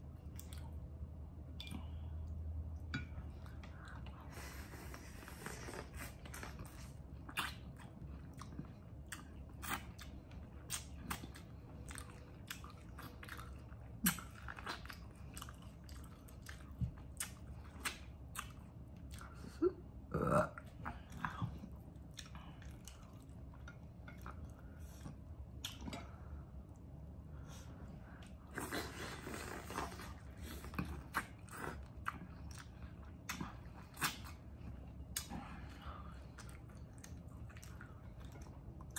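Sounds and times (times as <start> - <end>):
throaty vocal sound: 20.1 - 20.6.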